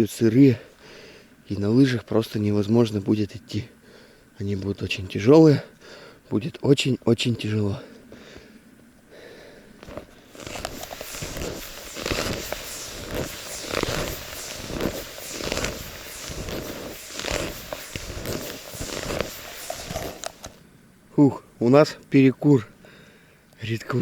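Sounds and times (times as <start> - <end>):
skis swishing through snow: 9.8 - 20.6.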